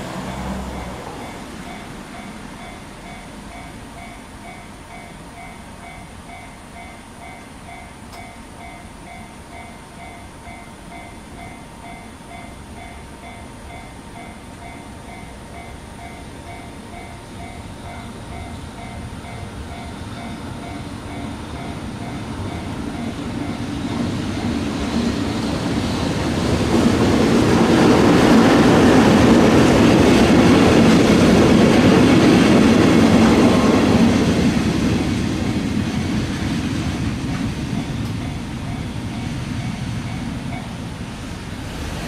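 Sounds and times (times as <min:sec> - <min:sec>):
train passing: 0:00.0 - 0:42.0
crossing alarm dinging: 0:00.1 - 0:24.4, 0:37.1 - 0:41.1.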